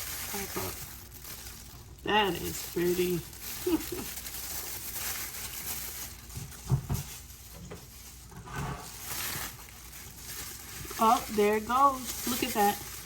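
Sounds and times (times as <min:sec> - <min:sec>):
corn husks rustling: 0:00.0 - 0:13.0.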